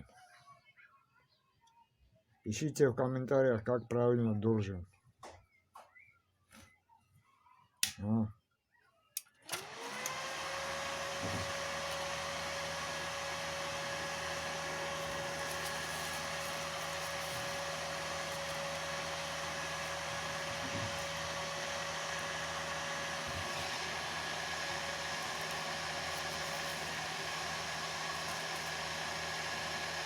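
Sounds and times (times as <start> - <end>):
cooling fan whining and humming: 9.4 - 30.0.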